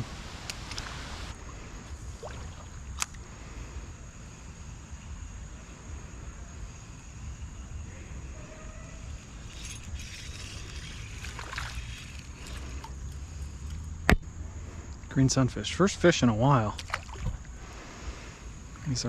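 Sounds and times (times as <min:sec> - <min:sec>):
creek water running: 0:00.0 - 0:03.1, 0:09.5 - 0:13.9, 0:15.7 - 0:18.1
fish splashing: 0:00.7 - 0:03.0, 0:09.7 - 0:13.1, 0:16.8 - 0:17.5.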